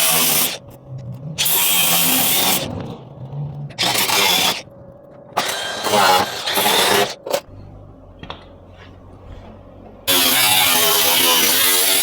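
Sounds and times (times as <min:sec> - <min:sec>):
low hum with faint ticks: 0:00.6 - 0:01.6, 0:02.7 - 0:03.8, 0:04.6 - 0:05.4
hand-held power tool running: 0:10.1 - 0:12.0.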